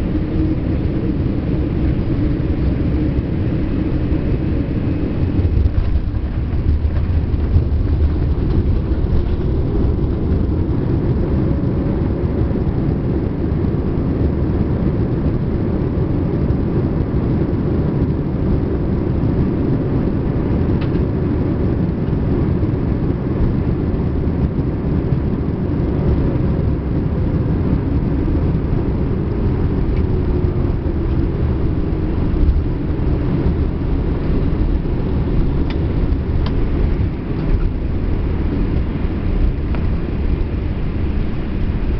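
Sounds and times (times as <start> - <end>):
rushing air: 0.0 - 13.1, 25.9 - 41.9
jet engines rumbling: 0.0 - 41.9.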